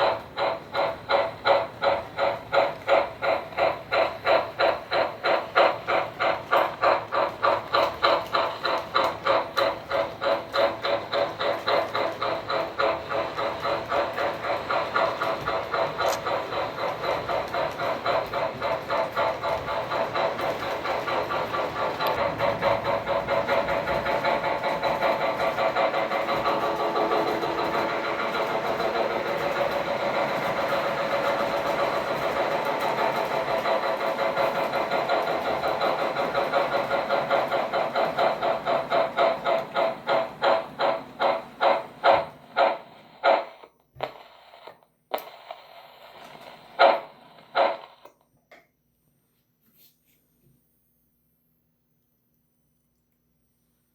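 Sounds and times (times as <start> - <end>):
model steam locomotive chuffing: 0.0 - 48.2.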